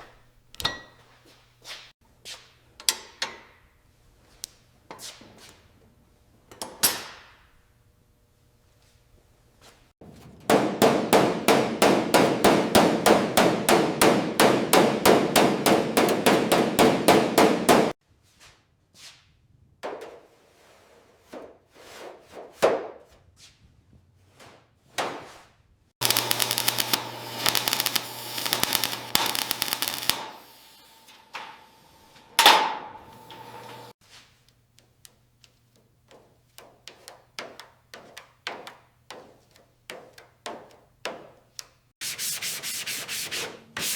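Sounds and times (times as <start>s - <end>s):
hammer striking metal: 10.5s - 18.0s.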